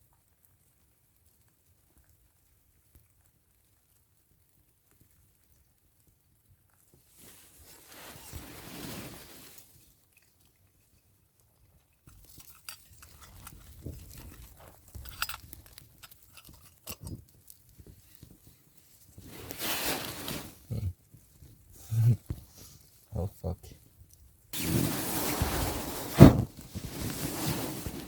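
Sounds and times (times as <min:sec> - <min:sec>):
tarp rustling and crackling: 0:06.8 - 0:10.9, 0:12.0 - 0:23.2, 0:24.5 - 0:28.0.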